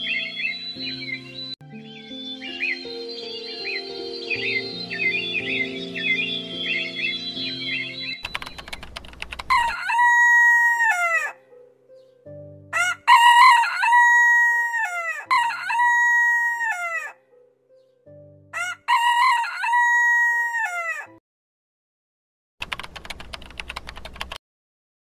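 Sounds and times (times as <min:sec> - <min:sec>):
rooster crowing: 0:09.5 - 0:11.4, 0:12.8 - 0:17.2, 0:18.6 - 0:21.2.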